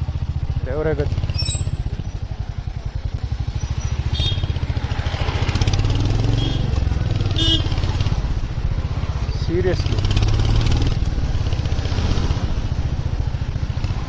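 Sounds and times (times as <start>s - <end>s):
motorcycle engine idling: 0.0s - 9.3s.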